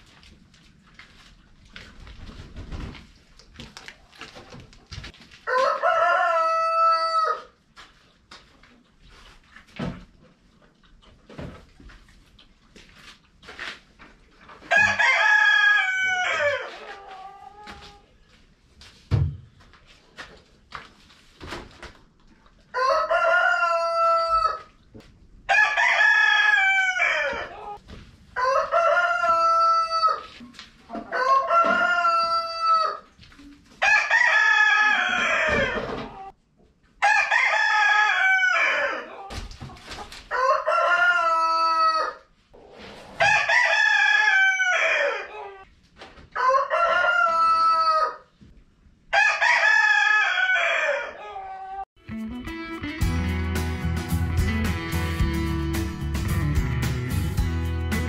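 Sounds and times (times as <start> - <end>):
rooster crowing: 5.4 - 7.5, 14.7 - 17.7, 22.7 - 24.7, 25.5 - 27.8, 28.4 - 30.3, 31.1 - 33.0, 33.8 - 36.3, 37.0 - 39.3, 40.3 - 42.2, 43.2 - 45.7, 46.4 - 48.3, 49.1 - 51.9.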